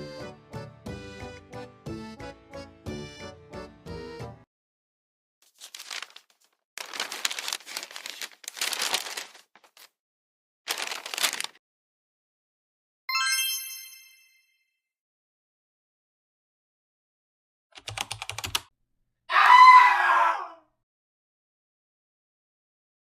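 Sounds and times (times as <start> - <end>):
rustling crumpling noise: 5.4 - 10.0, 10.7 - 11.6.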